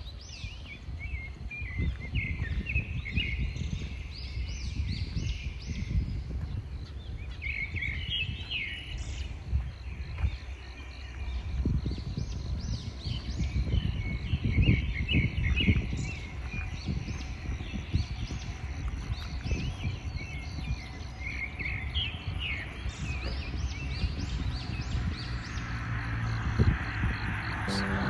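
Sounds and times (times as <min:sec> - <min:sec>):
birds chirping and calling: 0:00.0 - 0:28.0
low rumble: 0:23.6 - 0:28.0.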